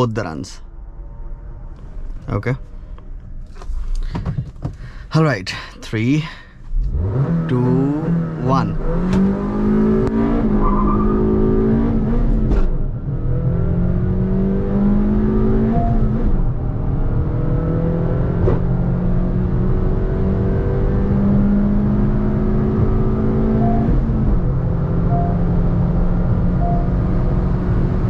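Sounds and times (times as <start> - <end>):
car engine accelerating: 6.2 - 28.0.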